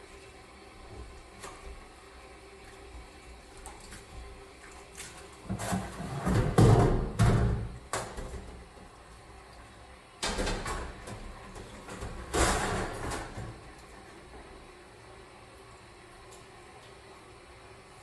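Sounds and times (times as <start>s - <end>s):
scrubbing an oven: 0.0s - 7.2s.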